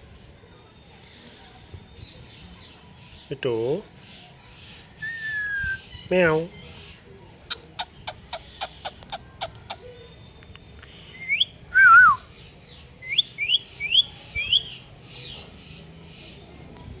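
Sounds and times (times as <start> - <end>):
parrot whistling: 5.0 - 5.8.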